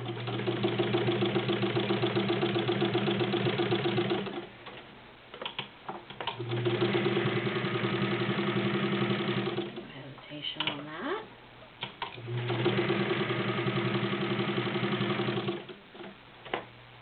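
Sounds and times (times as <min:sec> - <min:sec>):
sewing machine running: 0:00.0 - 0:04.5, 0:06.3 - 0:09.8, 0:12.2 - 0:15.8.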